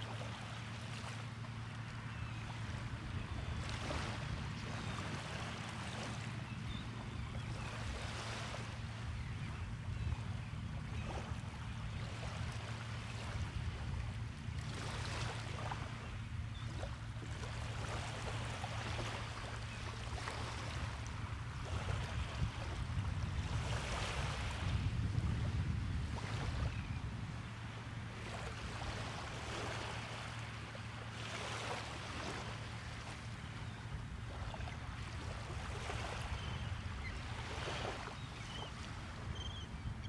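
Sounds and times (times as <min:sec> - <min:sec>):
waves breaking on a beach: 0:00.0 - 0:26.9, 0:27.5 - 0:39.7.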